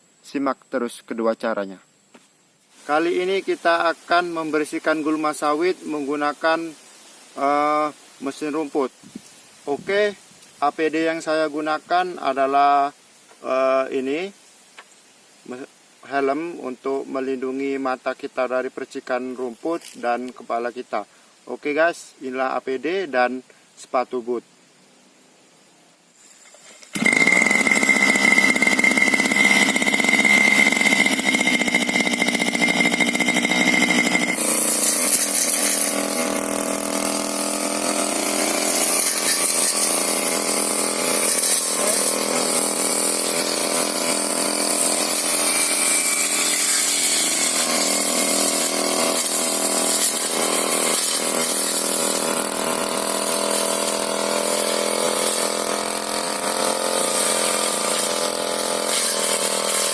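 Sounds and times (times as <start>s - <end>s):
strong high hiss: 0.0s - 26.9s
brush cutter engine running: 2.9s - 6.1s, 26.6s - 59.9s.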